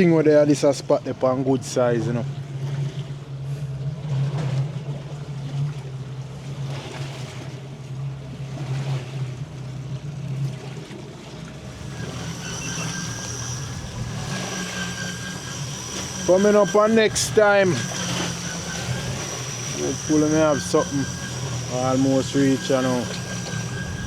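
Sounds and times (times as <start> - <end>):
boat motor humming: 0.0 - 24.0
water noise: 0.0 - 24.0
wind: 0.0 - 24.0
high steady whine: 11.6 - 24.0.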